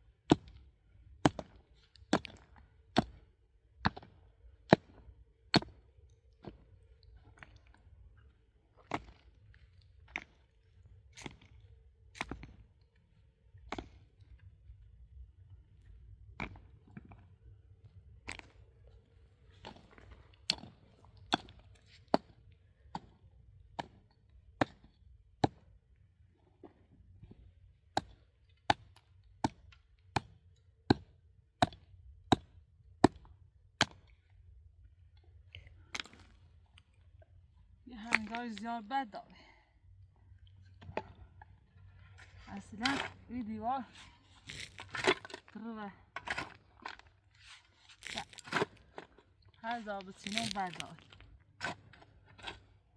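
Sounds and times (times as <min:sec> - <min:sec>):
hand tool striking rock: 0:31.6 - 0:33.2.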